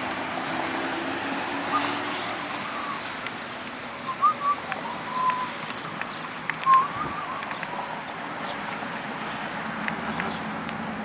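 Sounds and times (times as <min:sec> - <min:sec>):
birds whistling: 0:01.7 - 0:03.4, 0:04.0 - 0:11.0.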